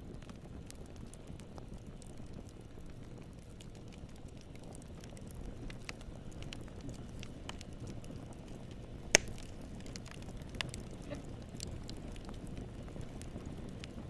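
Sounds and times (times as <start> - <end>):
small crackles and clicks: 0.0 - 14.0.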